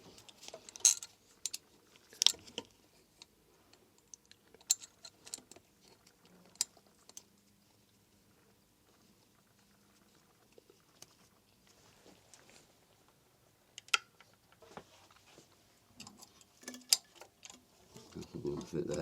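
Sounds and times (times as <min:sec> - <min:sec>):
metallic clicks and taps of tools: 0:13.8 - 0:14.6, 0:16.0 - 0:19.0.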